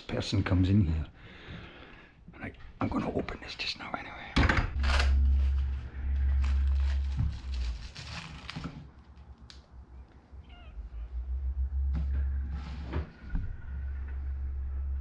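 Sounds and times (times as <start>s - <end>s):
low rumble: 4.0s - 15.0s.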